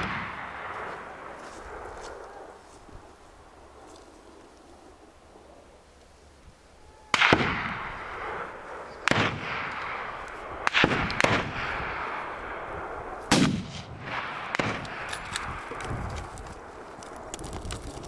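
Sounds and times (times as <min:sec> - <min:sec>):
rifle shots echoing: 0:00.0 - 0:02.5, 0:07.1 - 0:15.8.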